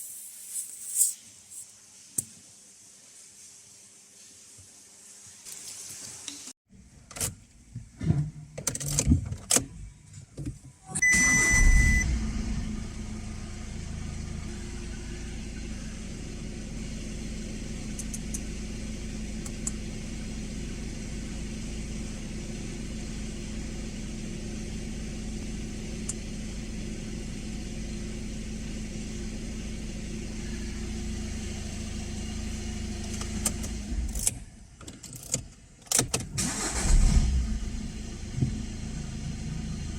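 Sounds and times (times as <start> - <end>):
brief beep: 11.0 - 12.2
car engine starting and idling: 11.0 - 39.9.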